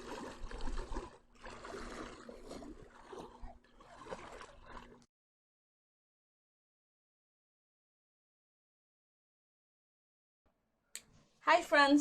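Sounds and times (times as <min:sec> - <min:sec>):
sea water sloshing and splashing: 0:00.0 - 0:05.1.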